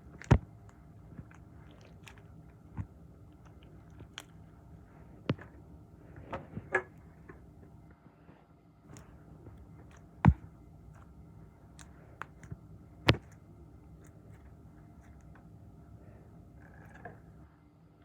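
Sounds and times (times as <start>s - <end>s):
squishy toys crackling: 0.0s - 7.7s, 8.9s - 15.6s
low steady hum: 0.0s - 18.0s.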